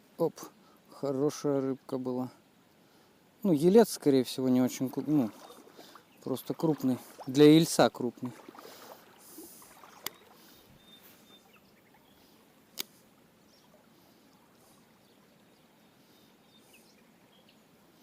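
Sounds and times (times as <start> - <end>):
rushing water: 3.5 - 18.0
faint high chirps: 10.0 - 12.4.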